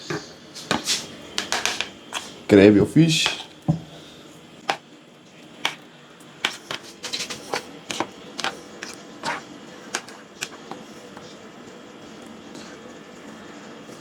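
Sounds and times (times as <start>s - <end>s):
kitchen utensils clicking: 0.0s - 2.4s, 6.4s - 9.4s, 10.0s - 10.8s.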